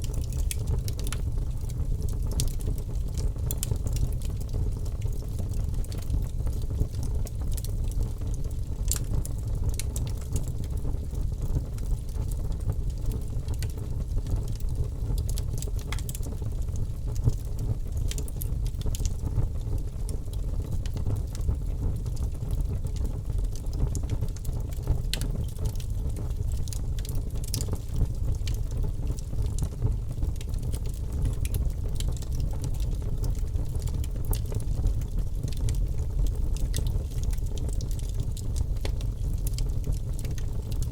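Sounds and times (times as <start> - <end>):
fire crackling and popping: 0.0 - 40.9
fire rumbling in fireplace: 0.0 - 40.9.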